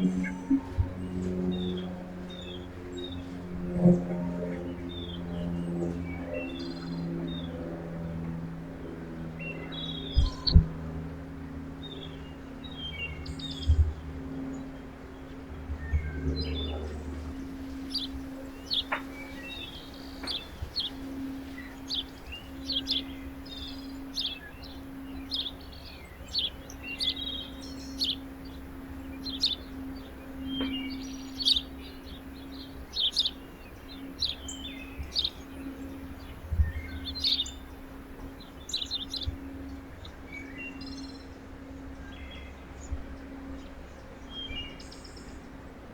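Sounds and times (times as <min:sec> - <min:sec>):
steady low hum: 0:00.0 - 0:45.9
small birds chirping: 0:09.3 - 0:45.4.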